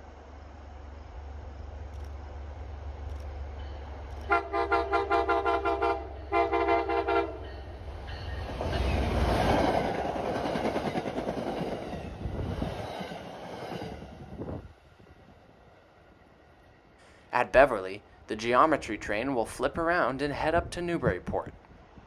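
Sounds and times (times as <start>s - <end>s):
train rumbling past: 0.0s - 20.7s
locomotive horn blasts: 4.3s - 7.4s.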